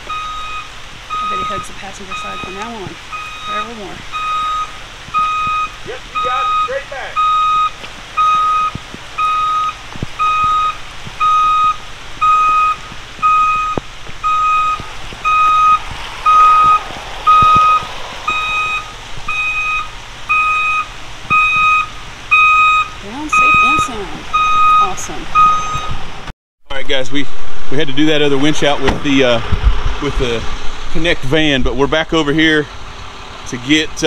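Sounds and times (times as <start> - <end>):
vehicle backup alarm beeping: 0.0 - 26.1.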